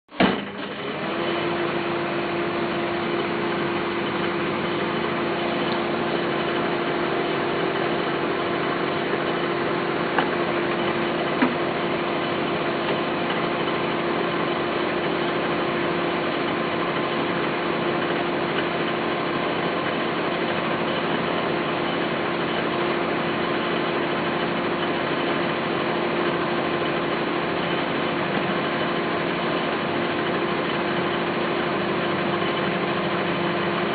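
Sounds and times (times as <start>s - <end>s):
microwave oven humming: 0.1s - 33.9s.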